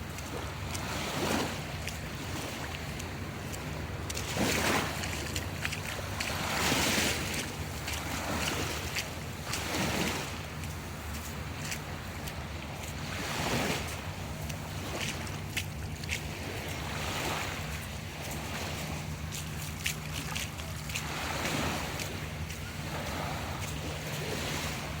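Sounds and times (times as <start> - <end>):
bare feet splashing in water: 0.0 - 25.0
small waves washing in: 0.0 - 25.0.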